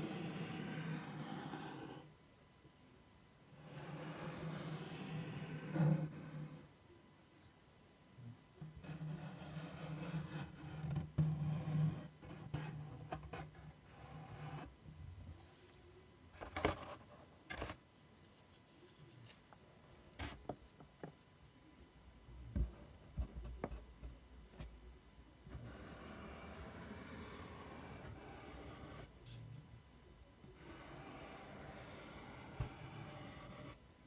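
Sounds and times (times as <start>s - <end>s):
scratching and rubbing on a surface: 25.6s - 29.8s, 30.6s - 33.8s.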